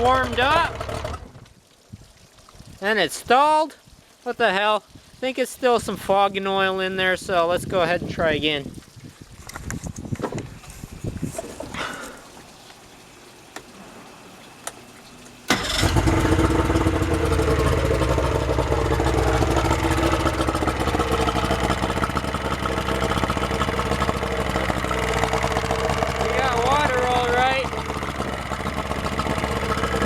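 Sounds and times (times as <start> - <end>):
outboard motor starting and idling: 0.0 - 1.6, 10.4 - 30.0.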